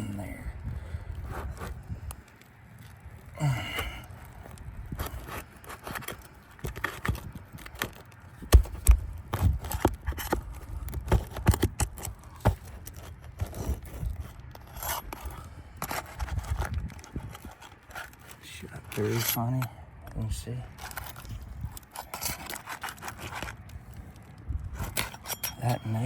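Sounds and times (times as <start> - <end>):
metal tool scraping shingles: 11.1 - 19.7, 20.7 - 23.7, 24.7 - 26.0.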